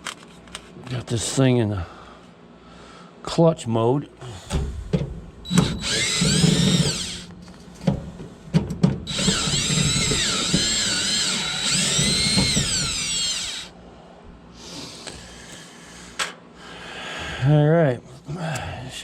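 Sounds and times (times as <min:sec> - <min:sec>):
drill clicks: 0:05.5 - 0:07.3, 0:09.1 - 0:13.7
power drill motor whine: 0:05.5 - 0:07.3, 0:09.1 - 0:13.7.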